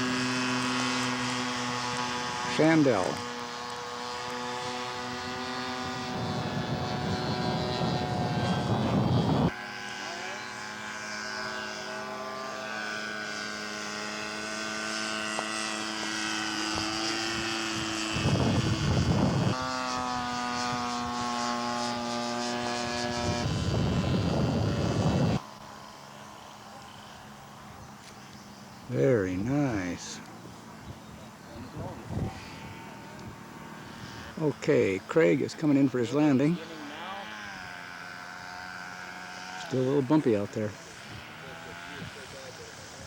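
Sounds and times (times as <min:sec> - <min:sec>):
model airplane engine in flight: 0:00.0 - 0:43.0
wind rumble on microphone: 0:04.6 - 0:09.6, 0:16.4 - 0:25.4, 0:30.8 - 0:34.4.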